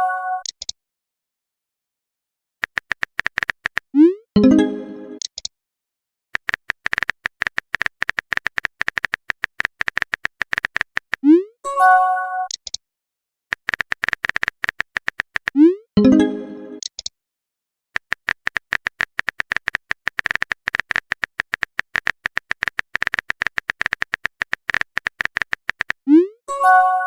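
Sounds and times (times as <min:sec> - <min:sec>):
keyboard typing clicks: 0:02.6 - 0:05.5, 0:06.4 - 0:11.4, 0:13.5 - 0:17.1, 0:18.0 - 0:26.0
message notification swoop and chime: 0:04.0 - 0:05.2, 0:16.0 - 0:16.8.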